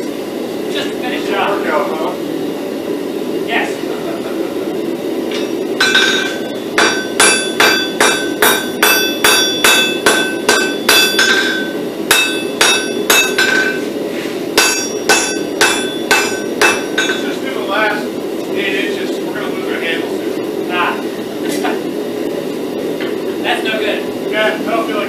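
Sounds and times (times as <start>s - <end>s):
hammer ringing on anvil: 5.4s - 13.8s, 14.6s - 17.4s.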